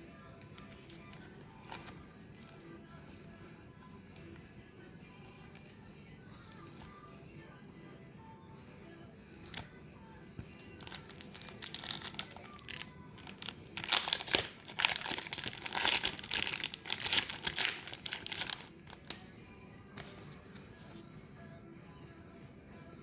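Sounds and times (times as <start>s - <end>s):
packaging crinkling and tearing: 10.6s - 19.2s.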